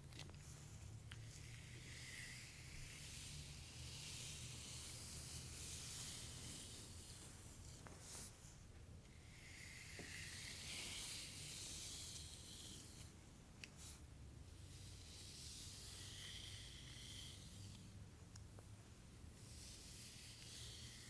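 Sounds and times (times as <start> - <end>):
brush strokes through hair: 0.4 - 8.6, 9.4 - 13.2.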